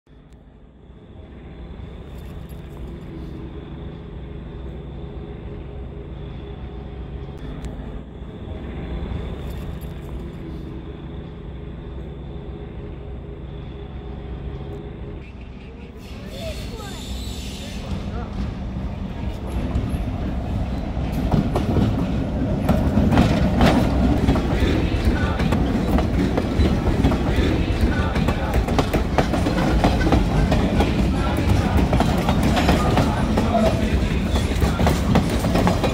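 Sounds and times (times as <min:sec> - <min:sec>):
train engine rumbling: 0:00.1 - 0:35.9
wheels clacking over rail joints: 0:21.1 - 0:35.9.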